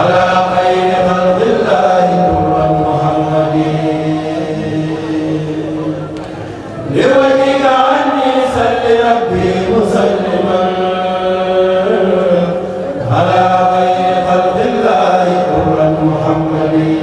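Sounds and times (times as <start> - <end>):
men chanting: 0.0 - 6.2, 6.8 - 17.0.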